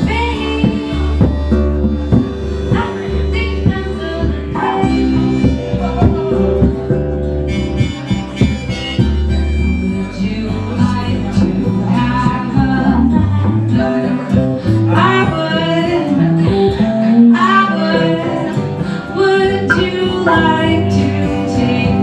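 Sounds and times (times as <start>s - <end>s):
harmonica lead: 0.0s - 11.0s, 19.7s - 21.7s
bass line: 0.0s - 22.0s
guitar: 0.0s - 22.0s.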